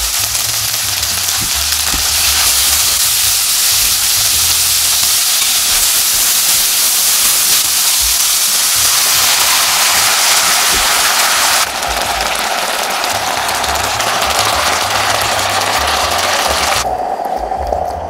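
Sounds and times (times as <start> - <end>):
vegetables sizzling in a wok: 0.0 - 17.0.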